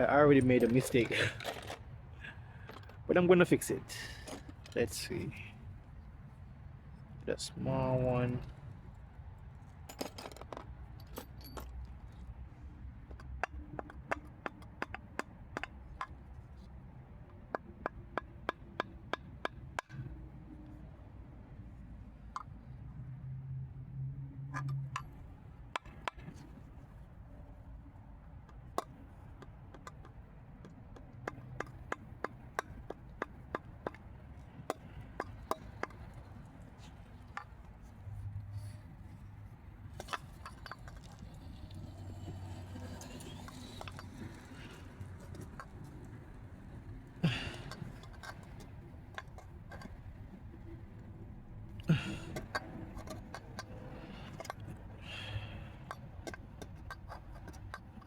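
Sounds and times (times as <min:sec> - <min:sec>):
hand tools clicking and tapping: 0:13.0 - 0:16.2, 0:17.2 - 0:20.2, 0:24.5 - 0:26.6, 0:28.4 - 0:37.7, 0:39.9 - 0:41.3, 0:43.0 - 0:50.7, 0:51.7 - 0:58.0.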